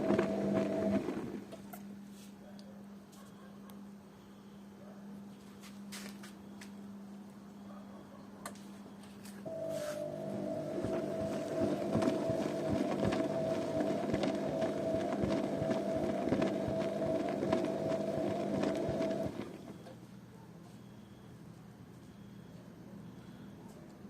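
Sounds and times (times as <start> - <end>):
wet laundry tumbling: 0.0 - 1.5, 10.0 - 19.7
motor whine: 9.5 - 19.9.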